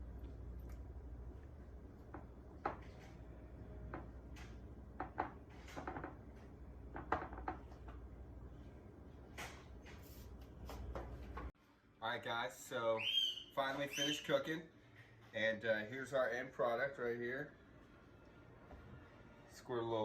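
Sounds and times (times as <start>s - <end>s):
low steady hum: 0.0s - 11.6s.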